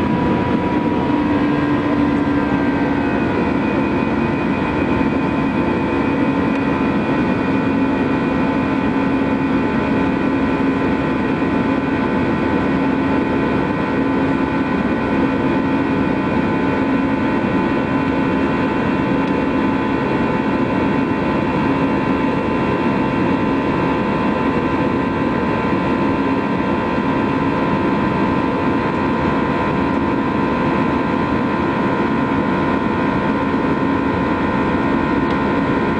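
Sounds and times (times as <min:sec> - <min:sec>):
high steady whining tones: 0:00.0 - 0:35.9
jet engines drone: 0:00.0 - 0:35.9.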